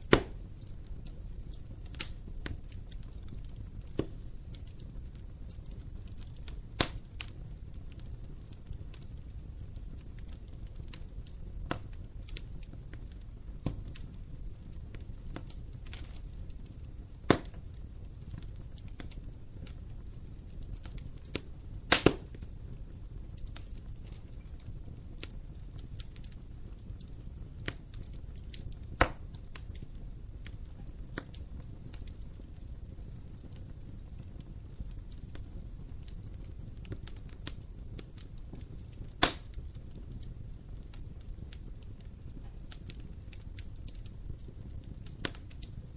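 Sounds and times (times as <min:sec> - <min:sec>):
wood fire burning: 0:00.0 - 0:45.9.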